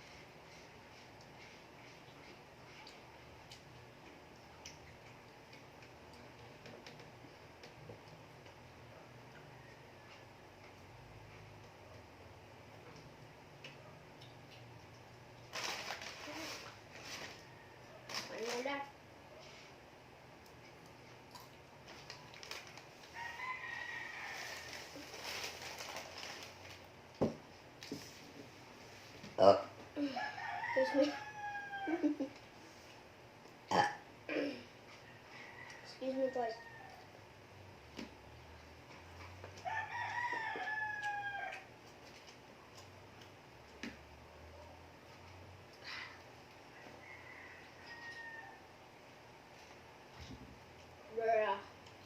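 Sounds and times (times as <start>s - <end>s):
clicks of eating food: 1.0s - 8.6s
rooster crowing: 23.1s - 25.1s, 30.0s - 32.2s, 35.0s - 37.2s, 39.6s - 41.7s, 46.7s - 48.7s.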